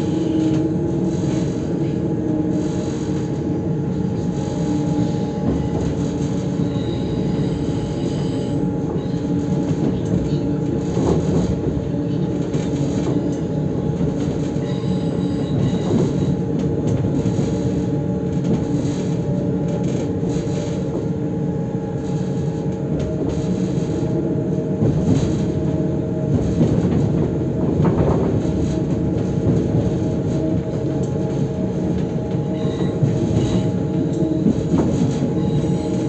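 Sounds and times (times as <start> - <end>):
train rumbling along track: 0.0 - 36.0.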